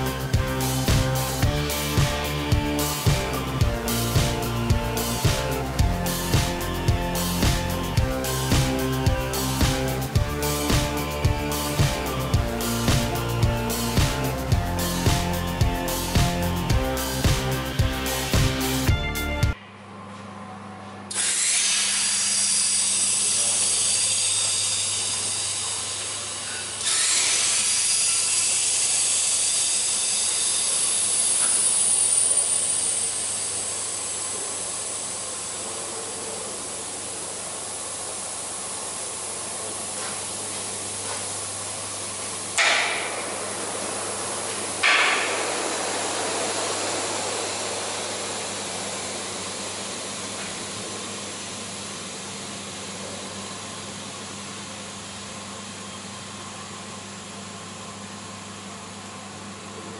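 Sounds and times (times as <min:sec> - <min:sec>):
compressed air hissing: 0:21.1 - 0:51.2
sharp air blasts: 0:42.1 - 0:50.3.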